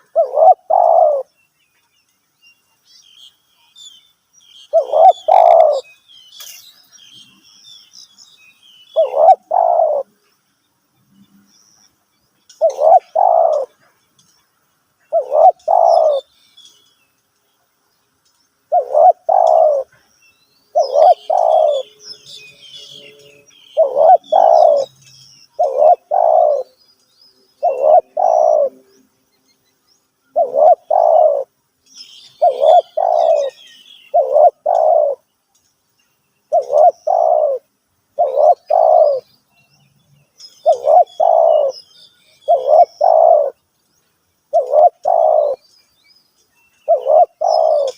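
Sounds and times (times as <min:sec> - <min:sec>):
dove cooing: 0:00.0 - 0:01.3, 0:04.7 - 0:05.9, 0:09.0 - 0:10.2, 0:12.6 - 0:13.9, 0:15.1 - 0:16.3, 0:18.7 - 0:20.0, 0:20.7 - 0:21.9, 0:23.8 - 0:24.9, 0:25.6 - 0:26.8, 0:27.6 - 0:28.8, 0:30.3 - 0:31.5, 0:32.4 - 0:35.2, 0:36.5 - 0:39.3, 0:40.6 - 0:41.8, 0:42.5 - 0:43.6, 0:44.5 - 0:45.6, 0:46.9 - 0:47.9
small birds chirping: 0:00.0 - 0:47.9.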